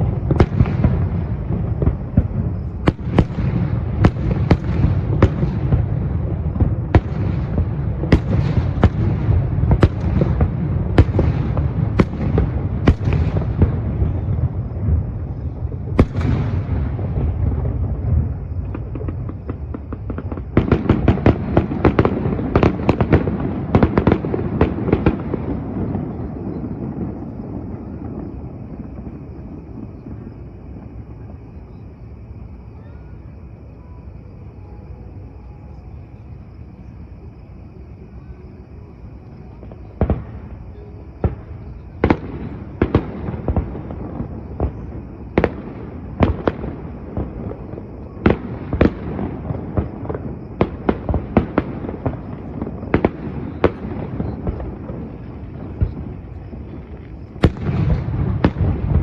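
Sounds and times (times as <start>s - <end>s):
fireworks bursting in bangs: 0.0s - 31.7s, 38.6s - 59.0s.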